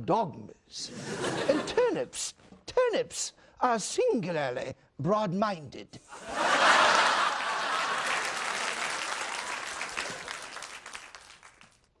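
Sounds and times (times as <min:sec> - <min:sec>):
audience applause: 0:06.5 - 0:11.9.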